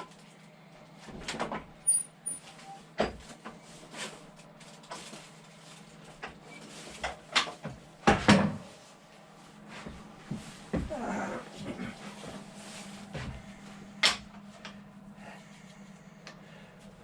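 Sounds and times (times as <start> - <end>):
steady low hum: 2.8 - 17.0.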